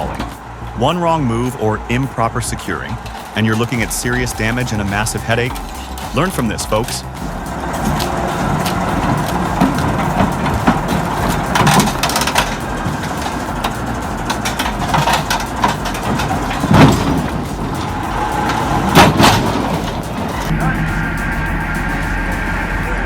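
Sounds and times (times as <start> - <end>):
heavy machinery running: 0.0 - 23.0
loud knocks: 3.8 - 21.0.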